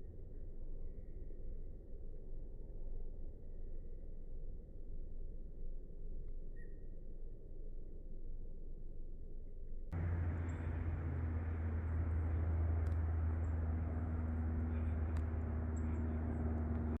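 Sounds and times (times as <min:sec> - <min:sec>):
low mechanical drone: 0:10.0 - 0:17.0.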